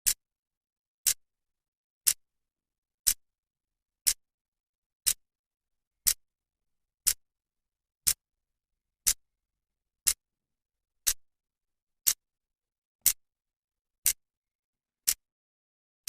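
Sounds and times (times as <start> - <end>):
clock ticking: 2.0 - 2.2, 4.0 - 4.2, 6.0 - 6.3, 7.0 - 7.2, 8.0 - 8.2, 10.0 - 10.2, 11.0 - 11.2, 12.0 - 12.2, 14.0 - 14.3, 15.0 - 15.3.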